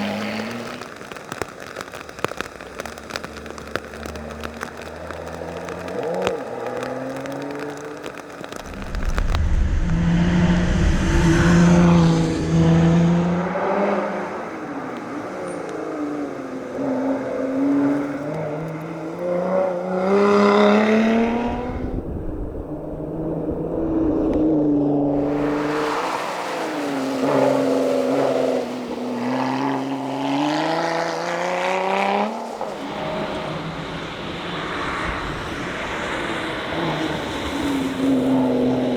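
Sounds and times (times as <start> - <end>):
car engine revving hard: 8.5 - 14.5, 16.7 - 22.0.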